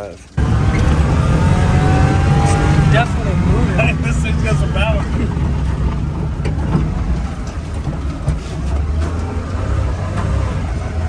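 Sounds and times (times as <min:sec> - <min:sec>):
rattling: 0:00.0 - 0:11.0
small truck engine running: 0:00.3 - 0:11.0.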